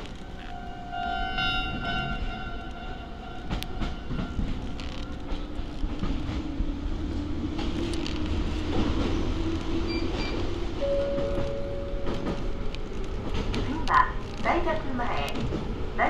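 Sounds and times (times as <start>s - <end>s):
high warning tone: 0.0s - 5.2s, 9.8s - 12.7s
wheels rumbling on rail: 0.0s - 16.0s
rail-joint click: 1.4s - 6.4s, 7.5s - 15.7s.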